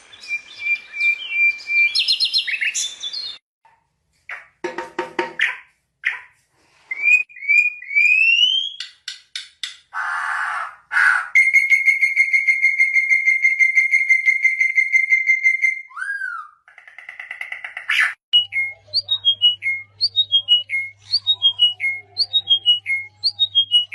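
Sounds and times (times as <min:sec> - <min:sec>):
songbird calls: 0:00.0 - 0:03.4.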